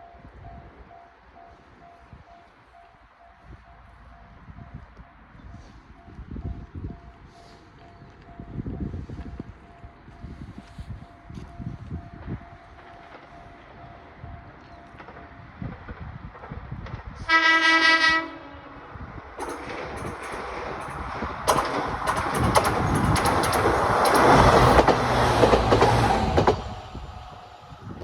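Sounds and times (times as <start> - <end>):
train running past: 6.8 - 28.0
train horn blast: 17.2 - 18.9
wheels clicking over rail joints: 19.3 - 26.9.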